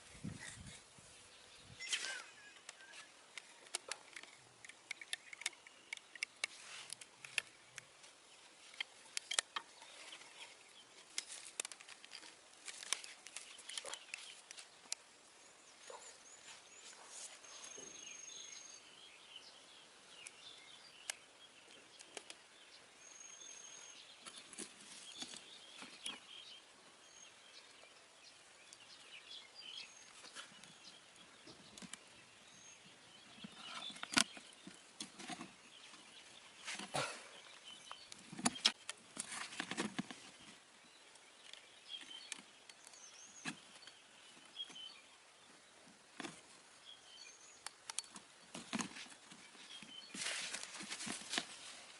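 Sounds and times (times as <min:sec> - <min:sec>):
rustling with clicks and knocks: 0:01.8 - 0:15.0, 0:33.2 - 0:40.6, 0:47.6 - 0:51.9.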